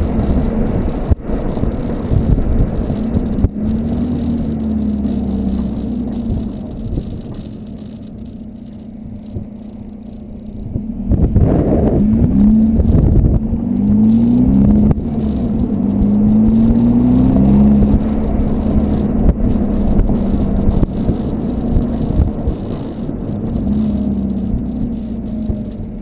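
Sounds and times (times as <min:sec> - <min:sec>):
diesel car engine droning: 0:00.0 - 0:26.0.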